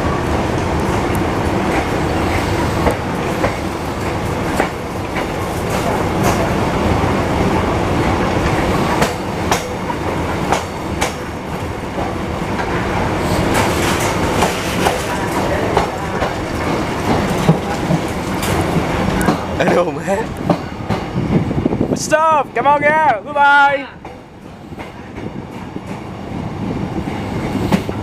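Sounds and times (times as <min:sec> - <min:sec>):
train rumbling on track: 0:00.0 - 0:28.0
wheels clacking over rail joints: 0:01.2 - 0:06.8, 0:08.4 - 0:21.1.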